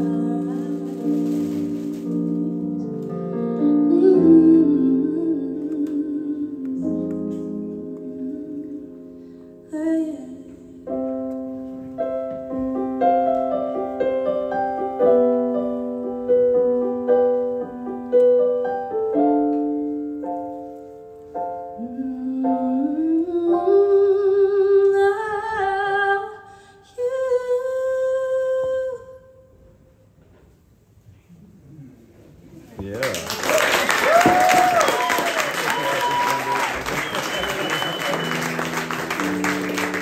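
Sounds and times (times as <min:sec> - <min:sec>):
woman singing wordless notes: 0:00.0 - 0:01.4, 0:02.1 - 0:10.9, 0:21.8 - 0:29.5
piano playing chords: 0:00.0 - 0:24.7, 0:36.9 - 0:40.0.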